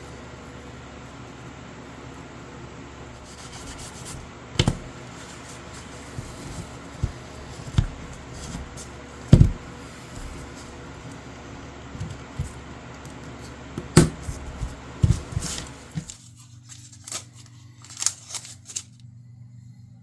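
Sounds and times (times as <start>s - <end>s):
hands rubbing and handling: 3.1s - 11.3s, 13.3s - 19.0s.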